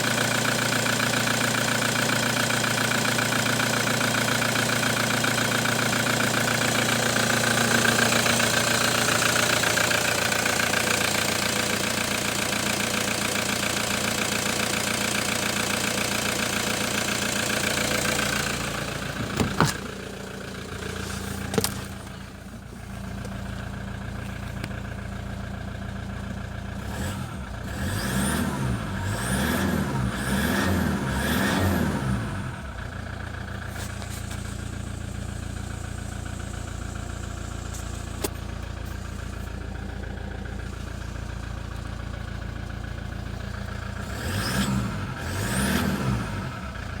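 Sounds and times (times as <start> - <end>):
engine idling: 0.0 - 47.0
engine revving: 26.8 - 32.8, 43.9 - 47.0.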